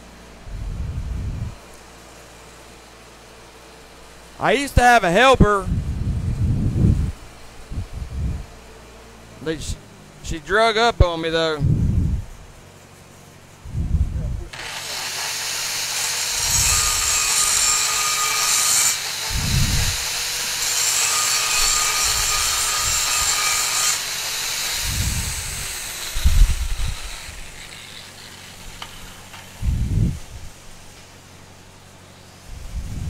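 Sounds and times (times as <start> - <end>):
angle grinder grinding metal: 14.5 - 30.3.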